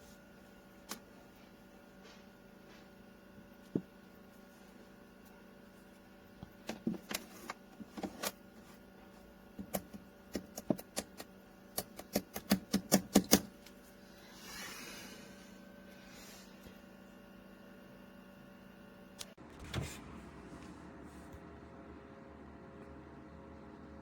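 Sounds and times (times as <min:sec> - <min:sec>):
faint steady hum: 0:00.0 - 0:24.0
sharp clicks and knocks: 0:09.6 - 0:13.5.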